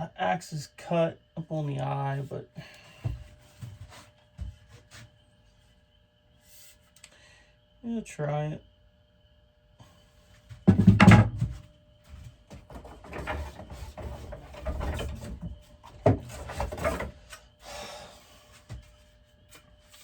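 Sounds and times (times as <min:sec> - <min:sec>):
wood rubbing and scraping: 0:12.5 - 0:17.2.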